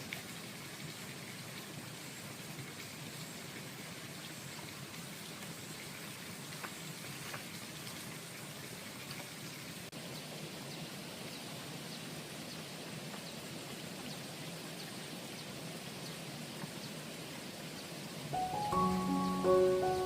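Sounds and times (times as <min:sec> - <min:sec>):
faint high chirps: 0:18.4 - 0:20.0
mallet percussion music: 0:18.4 - 0:20.0.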